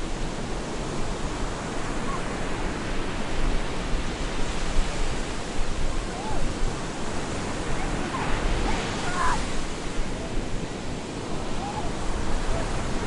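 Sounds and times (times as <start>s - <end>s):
waves breaking on beach: 0.0s - 13.0s.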